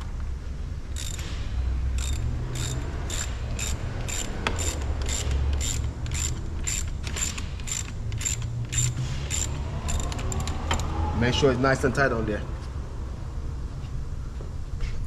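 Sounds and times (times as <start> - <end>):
hand ratchet clicking: 1.0 - 1.3, 1.9 - 10.9.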